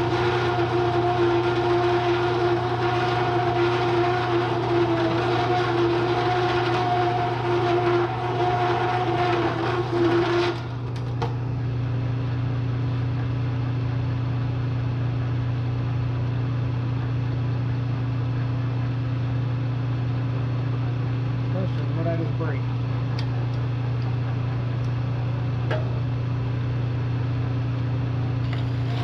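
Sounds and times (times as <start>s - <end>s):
hole saw cutting steel: 0.0s - 10.8s
electric motor humming: 0.0s - 10.9s.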